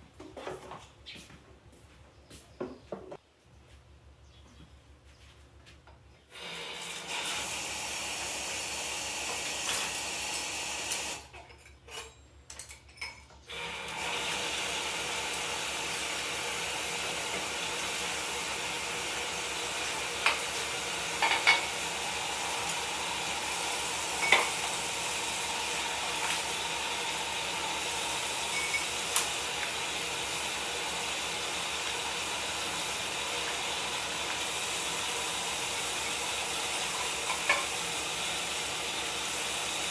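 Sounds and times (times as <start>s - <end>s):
food sizzling in a pot: 13.6s - 39.9s
utensil clinking against pot: 24.2s - 24.6s.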